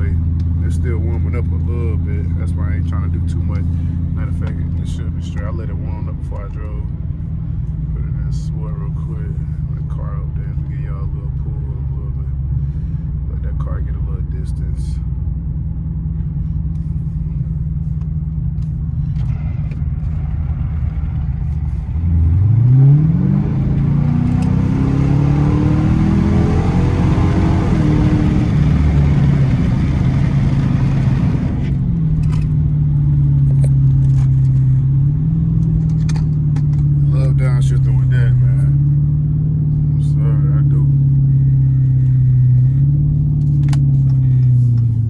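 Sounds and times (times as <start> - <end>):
car engine cruising: 0.0 - 45.0
car engine revving hard: 19.2 - 31.8.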